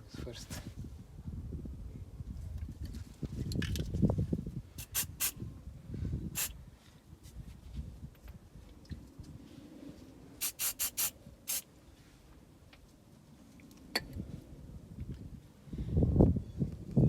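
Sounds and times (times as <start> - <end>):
aerosol spray can hissing: 4.8 - 5.4, 10.4 - 11.6.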